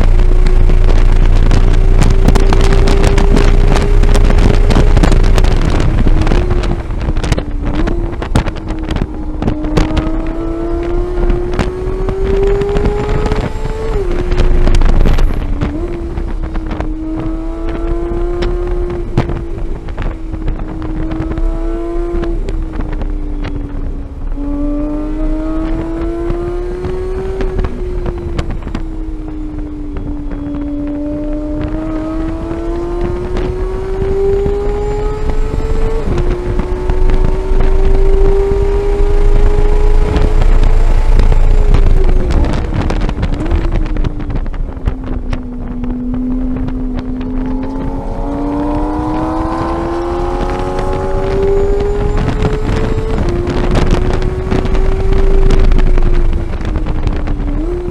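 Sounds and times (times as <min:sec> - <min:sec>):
car engine at full throttle: 0:00.0 - 0:57.9
wind rumble on microphone: 0:00.0 - 0:57.9.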